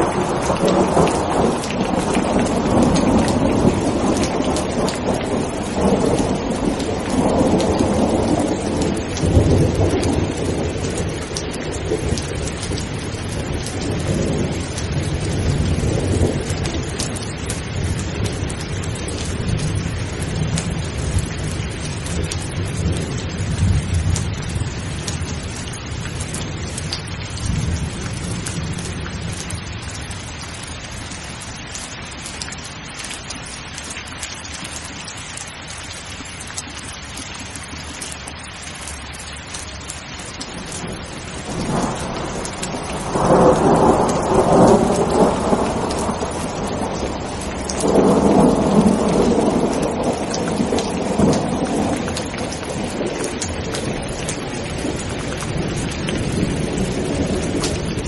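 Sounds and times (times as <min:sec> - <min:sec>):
thunder rumbling: 0:00.0 - 0:31.1, 0:40.3 - 0:58.0
heavy rain: 0:00.0 - 0:58.0.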